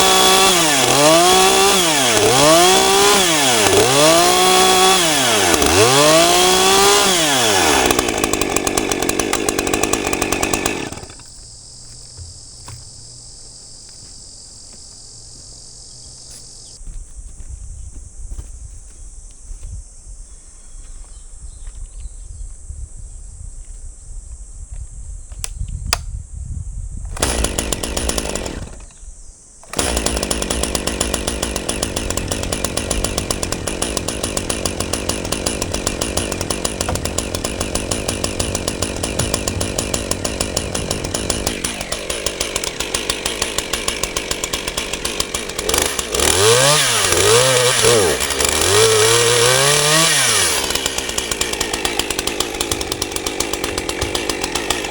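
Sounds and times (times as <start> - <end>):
chainsaw cutting log: 0.0 - 13.1, 27.1 - 29.0, 29.6 - 54.9.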